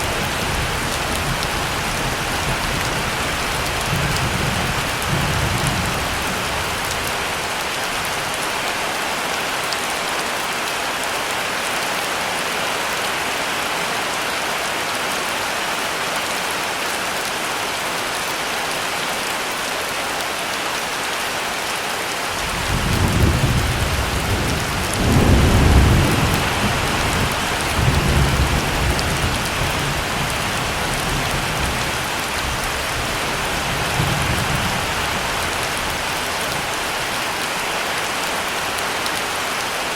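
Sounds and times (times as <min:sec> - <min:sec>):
heavy rain pouring: 0:00.0 - 0:39.9
thunder rumbling: 0:22.3 - 0:36.1.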